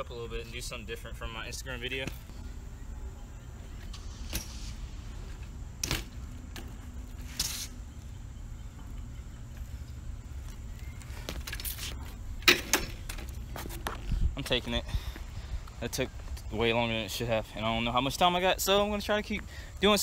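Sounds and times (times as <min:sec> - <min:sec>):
bike rolling on concrete: 0:00.1 - 0:20.0
bike scraping: 0:03.6 - 0:14.3
bike knocks: 0:05.3 - 0:07.5.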